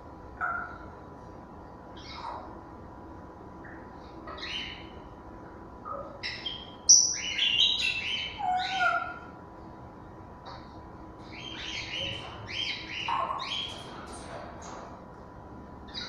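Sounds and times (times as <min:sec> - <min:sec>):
parrots whistling and squawking: 0:04.3 - 0:04.9, 0:05.9 - 0:09.3, 0:11.3 - 0:13.9.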